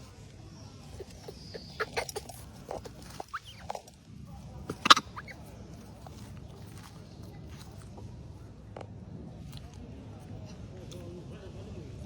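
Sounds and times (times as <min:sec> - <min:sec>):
faint outdoor ambience: 0:00.0 - 0:12.0
high animal squeaks and chirps: 0:00.9 - 0:03.9, 0:04.7 - 0:07.0.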